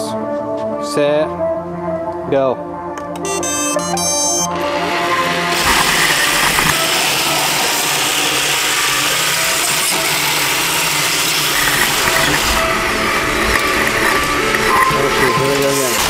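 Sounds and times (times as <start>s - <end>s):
robot vacuums whirring: 3.4s - 16.0s.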